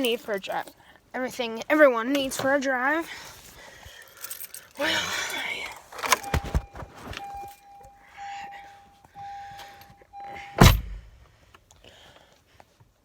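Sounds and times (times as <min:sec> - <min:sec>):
thumps of climbing in: 0:06.0 - 0:07.6
door-open warning chime: 0:06.0 - 0:11.2
truck door slamming: 0:10.6 - 0:11.2.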